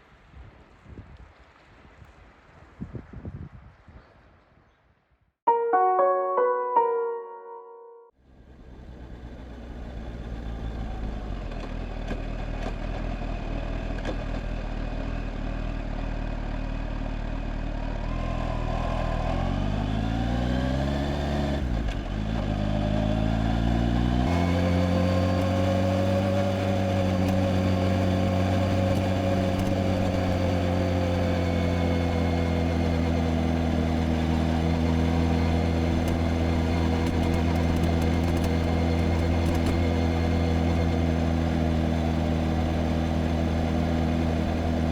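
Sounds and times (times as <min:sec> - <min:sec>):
motorcycle engine running: 0:24.3 - 0:44.9.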